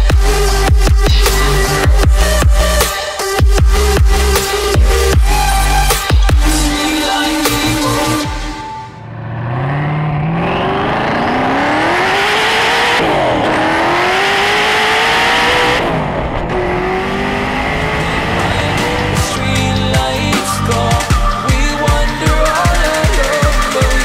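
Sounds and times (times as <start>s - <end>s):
car engine accelerating hard: 9.0s - 20.4s.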